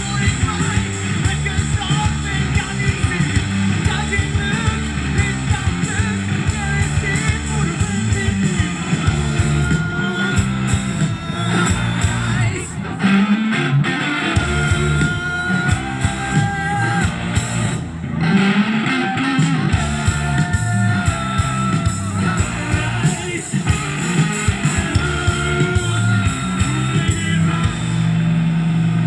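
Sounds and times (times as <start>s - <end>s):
live rock band playing: 0.0s - 29.0s.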